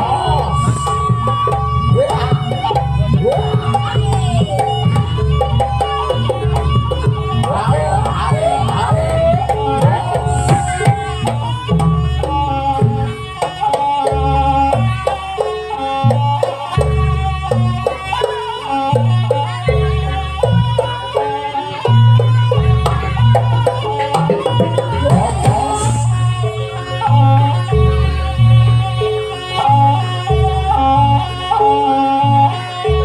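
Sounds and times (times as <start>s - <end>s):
heavy low drum strokes: 0.0s - 13.2s, 21.9s - 27.7s
stepped lead instrument melody: 0.0s - 33.0s.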